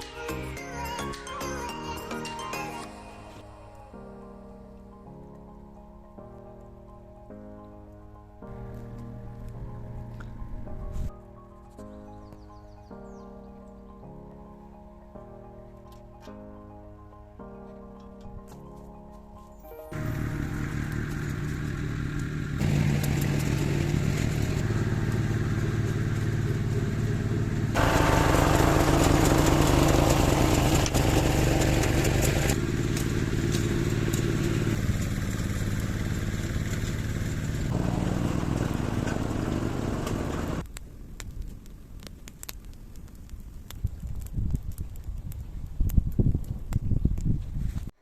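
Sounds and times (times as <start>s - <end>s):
engine humming: 19.9s - 40.7s.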